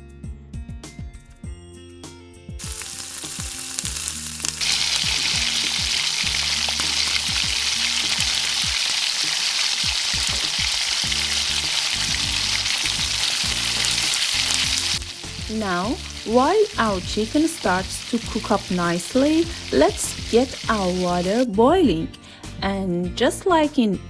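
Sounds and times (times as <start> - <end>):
chicken sizzling in a pan: 2.6 - 21.5.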